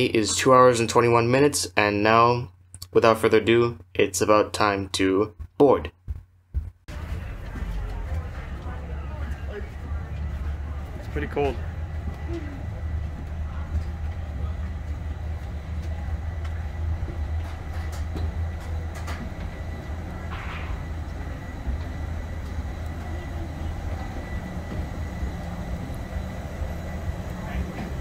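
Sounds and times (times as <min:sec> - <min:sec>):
low rumble of parked airliner: 0:06.9 - 0:28.0
faint high whine: 0:07.0 - 0:28.0.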